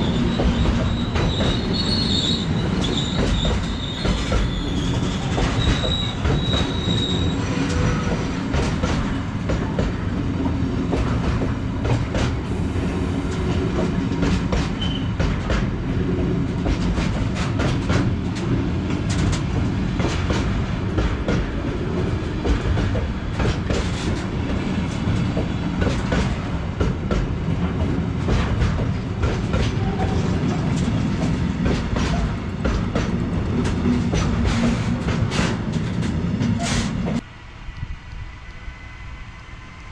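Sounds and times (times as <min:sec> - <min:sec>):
high wheel squeal: 0:00.0 - 0:08.4, 0:14.8 - 0:15.2
freight train rumbling past: 0:00.0 - 0:39.9.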